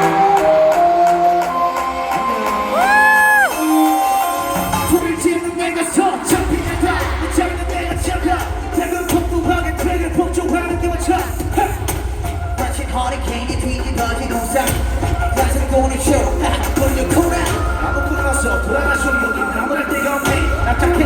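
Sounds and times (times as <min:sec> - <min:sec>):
pop concert music through speakers: 0:00.0 - 0:21.0
heavy bass beat: 0:04.8 - 0:21.0.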